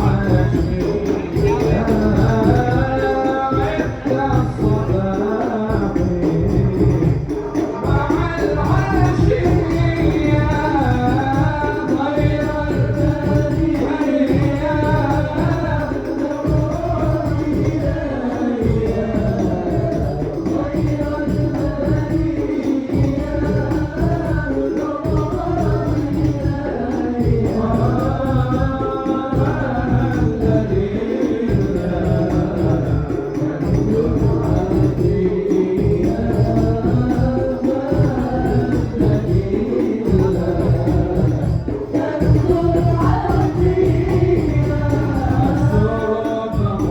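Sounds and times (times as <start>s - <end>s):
frame drums with jingles: 0.0s - 46.9s
man singing: 0.0s - 46.9s.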